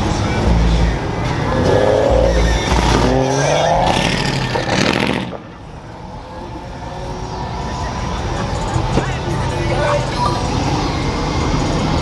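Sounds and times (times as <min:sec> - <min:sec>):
car engine revving while accelerating: 0:01.5 - 0:05.4.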